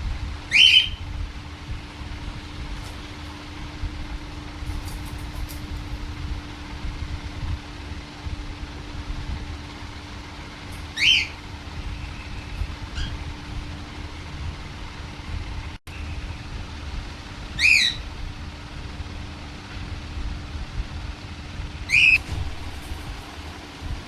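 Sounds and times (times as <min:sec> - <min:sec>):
low hum: 0:00.0 - 0:24.0
parrot squawking: 0:00.5 - 0:01.1, 0:10.8 - 0:11.5, 0:12.8 - 0:13.3, 0:17.6 - 0:18.1, 0:21.9 - 0:22.2
parrot chirping: 0:00.5 - 0:01.2, 0:10.8 - 0:13.3, 0:17.6 - 0:18.1, 0:21.9 - 0:22.2.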